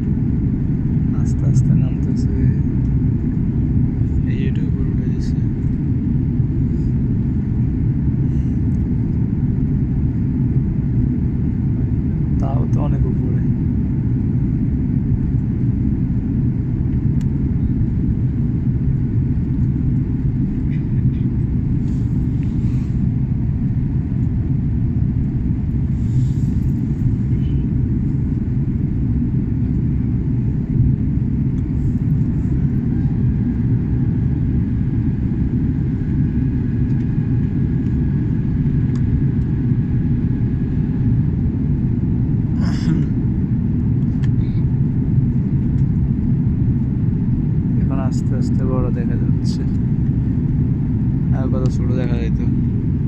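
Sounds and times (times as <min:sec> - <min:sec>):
airliner cabin engine rumble: 0:00.0 - 0:53.0.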